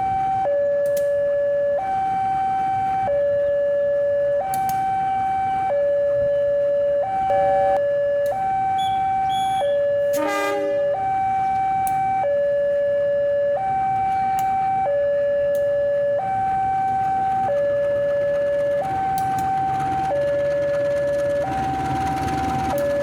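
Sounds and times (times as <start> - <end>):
two-tone crossing alarm: 0.0 - 23.0.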